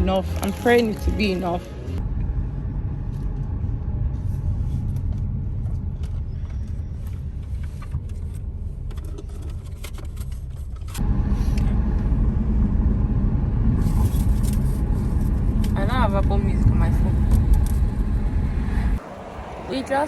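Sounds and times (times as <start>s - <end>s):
car driving rumble: 0.0s - 20.0s.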